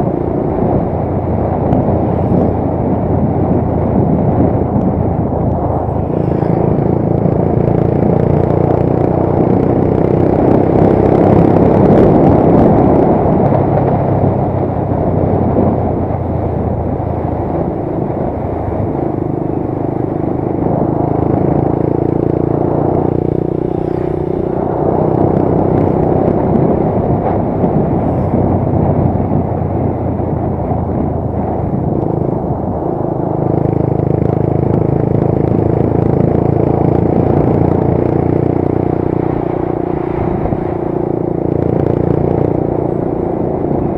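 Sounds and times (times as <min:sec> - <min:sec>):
motorcycle engine running: 0:00.0 - 0:43.9
road noise: 0:00.0 - 0:43.9
wind noise: 0:00.0 - 0:43.9.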